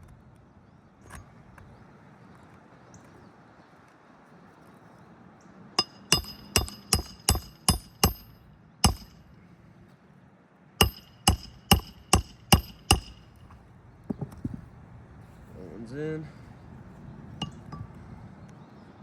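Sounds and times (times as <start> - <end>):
hammer striking nail: 5.8 - 9.2, 10.8 - 13.5.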